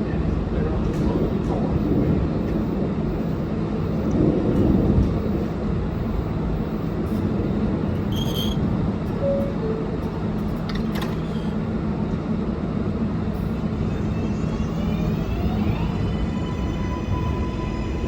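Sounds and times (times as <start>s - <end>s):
train wheels rumbling on rail: 0.0s - 18.0s
high-pitched squeal: 8.1s - 8.6s.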